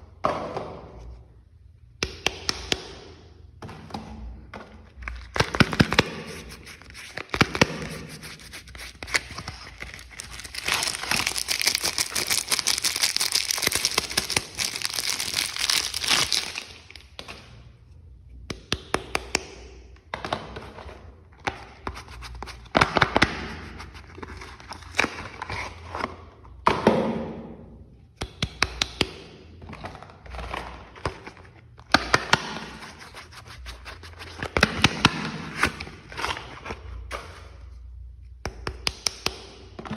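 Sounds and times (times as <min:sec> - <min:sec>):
wrapper crinkling and tearing: 0:05.1 - 0:17.1.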